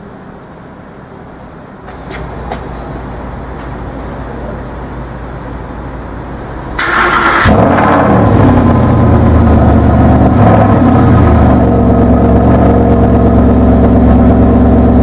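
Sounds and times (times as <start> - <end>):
street traffic rumble: 0.0 - 15.0
car engine starting loudly: 6.8 - 15.0.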